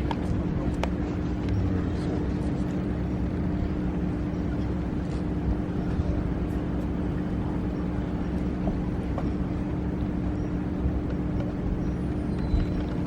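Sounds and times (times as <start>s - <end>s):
constant low hum: 0.0s - 13.0s.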